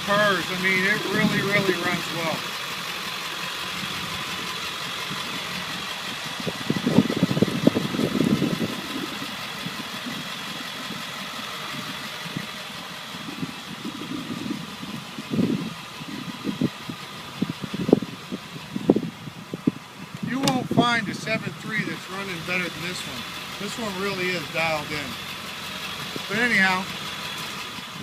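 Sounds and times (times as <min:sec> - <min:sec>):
turbo whine: 0:00.0 - 0:18.1
diesel engine idling: 0:00.0 - 0:28.0.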